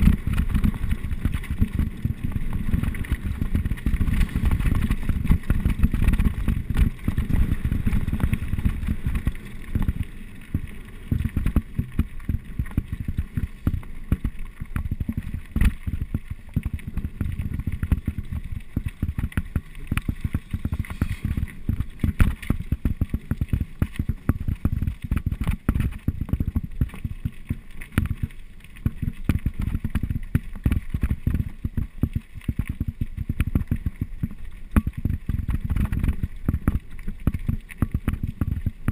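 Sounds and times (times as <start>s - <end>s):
wind buffeting microphone: 0.0s - 23.0s
bike rattling on rough trail: 0.0s - 38.9s.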